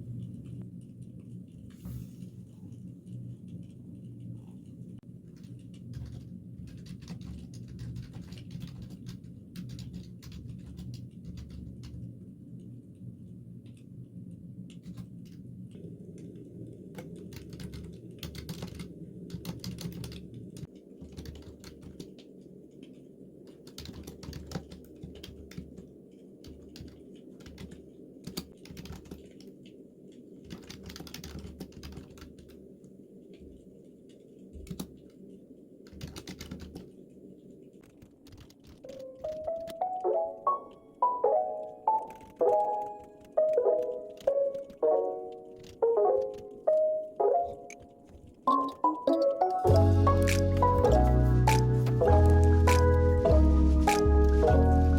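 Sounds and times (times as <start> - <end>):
low steady hum: 0.0 - 23.5
computer keyboard typing: 5.3 - 12.0, 16.9 - 32.6, 35.8 - 37.0, 37.8 - 53.3, 53.9 - 54.7.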